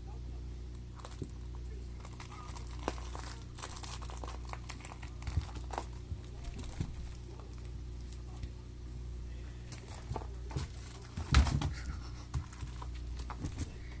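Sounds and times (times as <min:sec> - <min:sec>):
steady low hum: 0:00.0 - 0:14.0
kitten scratching and tapping: 0:09.8 - 0:13.8.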